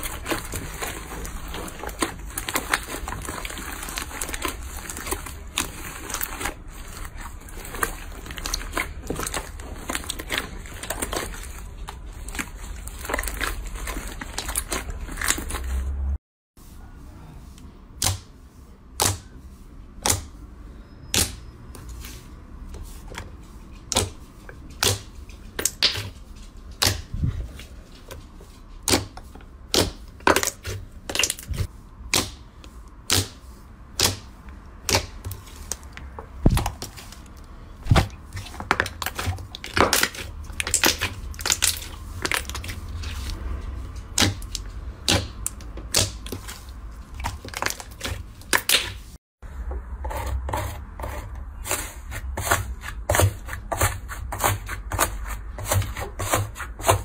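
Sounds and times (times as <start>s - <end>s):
slime crackling and crunching: 0.0s - 16.0s, 29.7s - 32.4s, 33.0s - 43.4s, 44.0s - 49.2s.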